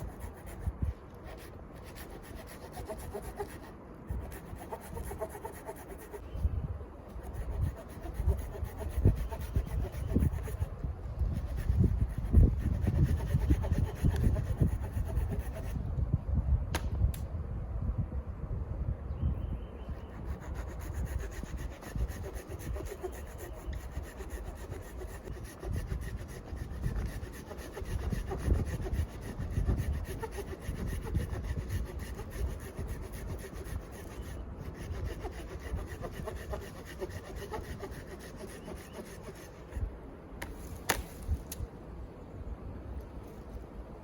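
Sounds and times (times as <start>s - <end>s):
hand saw cutting wood: 1.3s - 6.2s, 7.2s - 10.7s, 11.4s - 15.7s, 20.2s - 39.8s.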